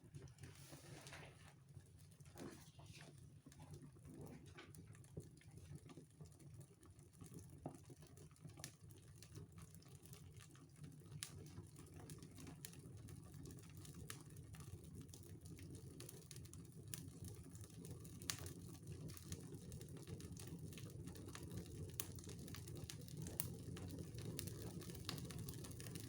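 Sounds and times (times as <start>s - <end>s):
fire crackling and popping: 7.2s - 26.0s.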